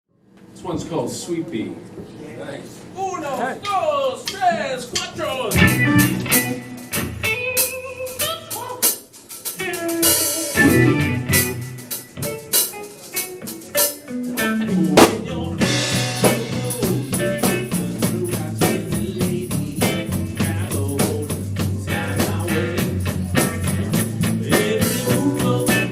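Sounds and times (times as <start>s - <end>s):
drum kit with cymbal hits: 4.2s - 25.9s
bass line: 5.6s - 6.6s, 10.6s - 11.8s, 14.6s - 25.9s
electric guitar: 5.6s - 8.6s, 9.6s - 25.9s.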